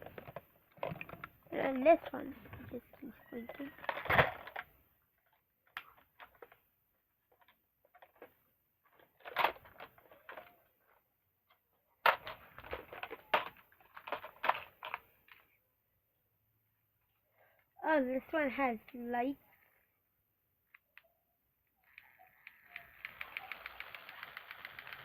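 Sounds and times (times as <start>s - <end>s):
plastic toy truck clicking and clattering: 0.0s - 15.6s, 21.9s - 25.0s.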